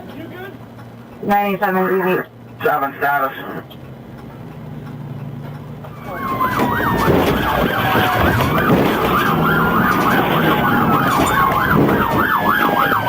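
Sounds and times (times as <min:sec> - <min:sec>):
low engine hum: 0:00.0 - 0:13.0
police siren yelp: 0:05.9 - 0:13.0
second siren sliding in pitch: 0:05.9 - 0:13.0.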